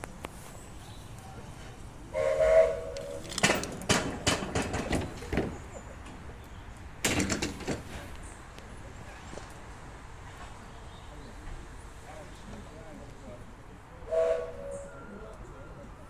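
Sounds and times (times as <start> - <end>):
steam locomotive whistle: 2.1 - 3.2, 14.1 - 15.3.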